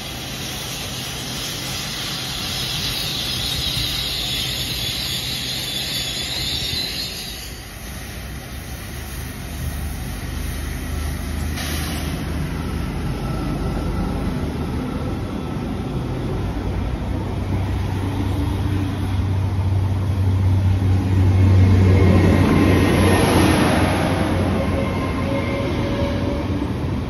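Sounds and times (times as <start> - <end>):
train diesel engine rumble: 0.0 - 27.0.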